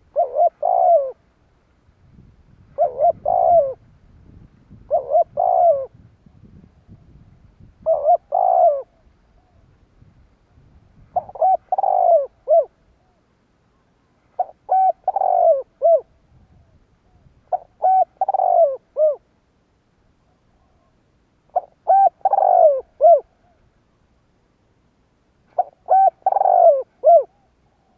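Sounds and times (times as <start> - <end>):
dove cooing: 0.0 - 1.3, 2.6 - 3.9, 4.7 - 6.0, 7.8 - 9.7, 11.0 - 13.2, 14.3 - 19.3, 20.3 - 23.7, 25.5 - 27.9.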